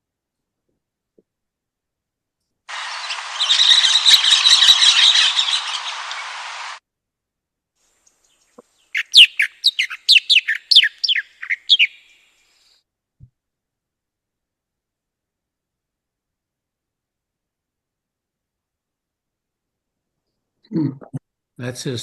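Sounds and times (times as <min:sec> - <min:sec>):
bird chattering call: 0:02.7 - 0:06.8, 0:08.9 - 0:12.1
descending whistled bird notes: 0:02.7 - 0:06.8, 0:08.9 - 0:12.8
recording hiss: 0:02.7 - 0:06.8.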